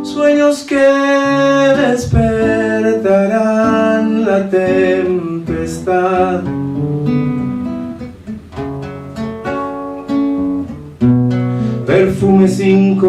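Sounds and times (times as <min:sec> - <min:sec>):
person singing: 0:00.0 - 0:06.8, 0:11.6 - 0:13.0
acoustic guitar playing: 0:00.0 - 0:13.0.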